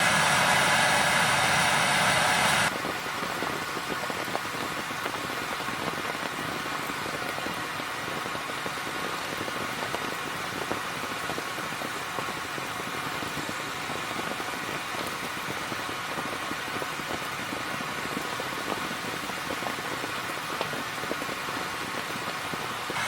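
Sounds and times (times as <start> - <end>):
bright hiss: 0.0 - 7.2, 21.2 - 23.0
rain on a tent: 0.0 - 23.0.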